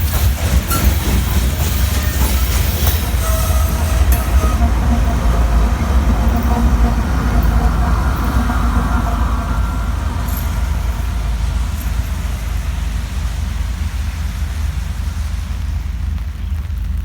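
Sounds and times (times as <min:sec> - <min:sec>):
freight train rolling by: 0:00.0 - 0:17.0.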